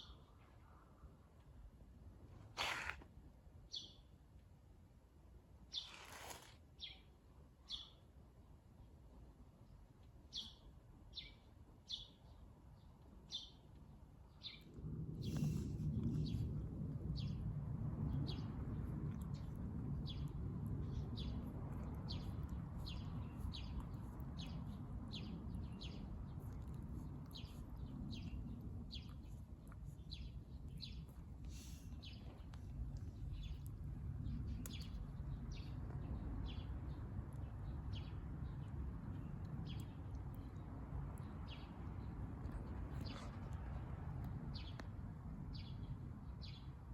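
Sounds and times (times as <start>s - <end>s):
low steady rumble: 13.8s - 46.9s.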